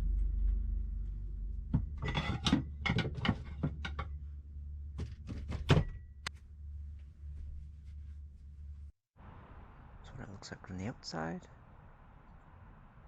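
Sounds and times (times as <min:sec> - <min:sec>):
low hum: 0:00.0 - 0:13.0
door knocks and clicks: 0:05.0 - 0:06.0.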